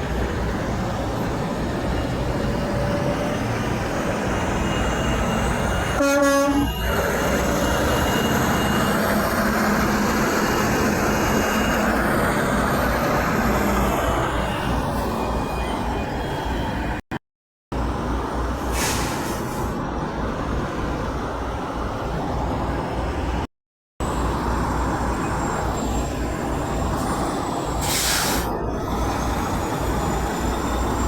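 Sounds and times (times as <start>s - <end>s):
passing truck traffic: 0.0s - 17.0s, 17.8s - 31.0s
truck air horn blast: 6.0s - 6.7s.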